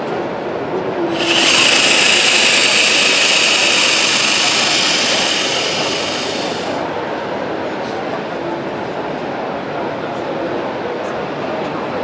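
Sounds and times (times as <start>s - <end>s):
power tool whining: 1.1s - 6.8s.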